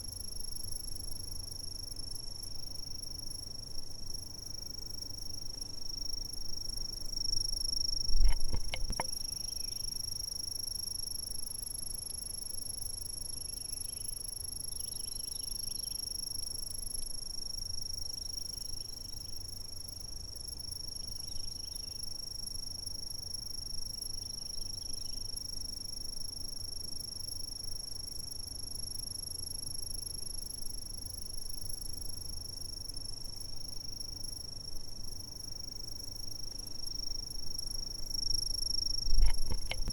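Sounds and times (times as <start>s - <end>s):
lower insect calls: 0.0s - 39.9s
insects trilling: 0.1s - 39.9s
low thump with clicks: 8.1s - 9.1s, 39.1s - 39.9s.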